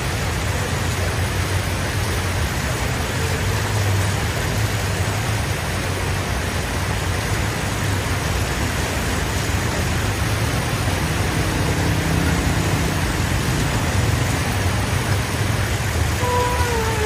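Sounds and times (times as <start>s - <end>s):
constant hiss: 0.0s - 17.0s
vehicle engines running: 0.0s - 17.0s
short tone dipping in pitch: 16.2s - 17.0s.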